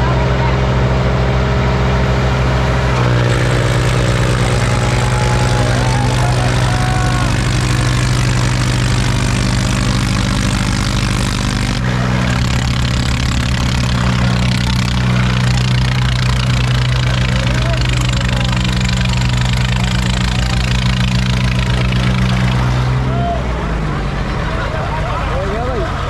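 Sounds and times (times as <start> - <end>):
tractor diesel engines humming: 0.0 - 26.0.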